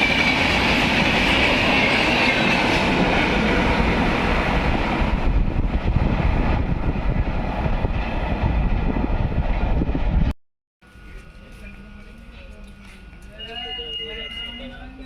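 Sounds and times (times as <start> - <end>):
train wheels rumbling on rails: 0.0 - 10.3.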